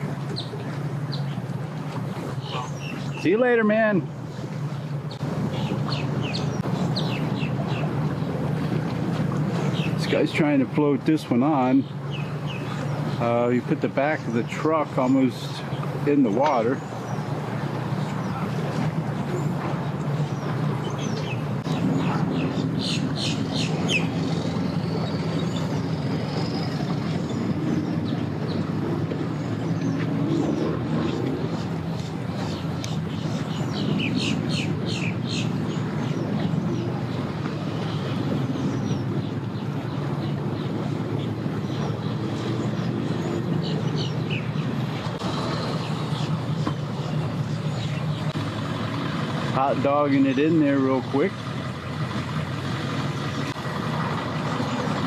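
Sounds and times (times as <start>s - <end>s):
engine running at low revs: 4.1s - 55.0s
bird chirps: 5.1s - 7.9s, 29.4s - 36.9s.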